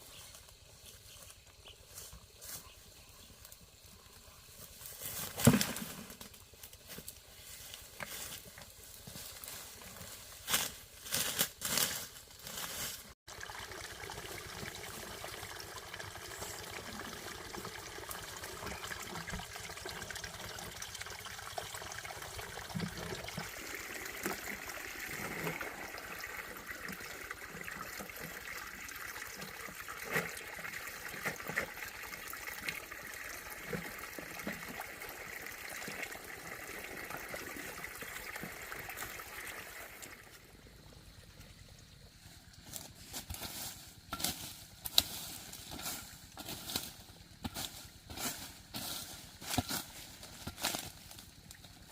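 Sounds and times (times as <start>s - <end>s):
water trickling: 13.3s - 42.6s.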